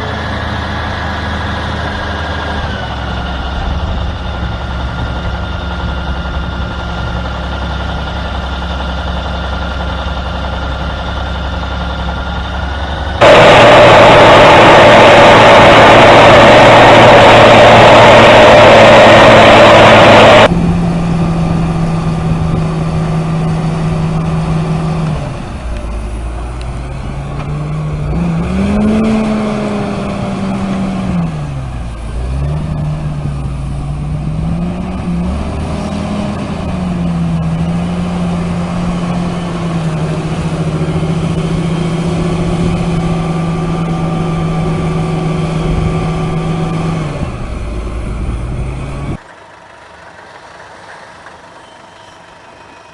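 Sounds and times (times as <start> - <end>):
vehicle engine revving: 0.0 - 49.2
loud noise: 10.2 - 23.7.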